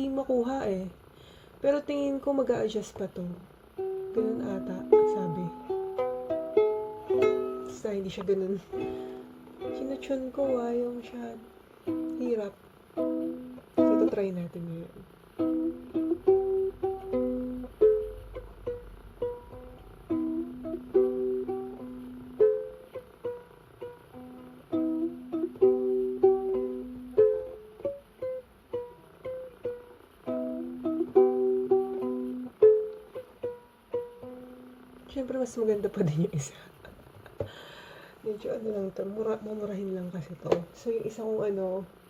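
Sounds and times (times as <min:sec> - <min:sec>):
ukulele plucked melody: 0:03.7 - 0:35.1.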